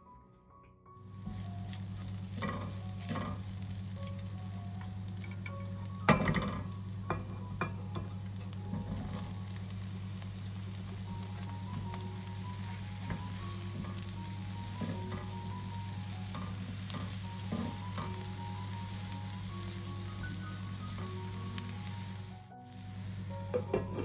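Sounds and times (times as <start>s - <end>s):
food sizzling in oil: 1.0s - 24.0s
steady low hum: 1.0s - 24.0s
utensil scraping pan: 1.3s - 3.8s, 16.3s - 18.2s, 23.5s - 24.0s.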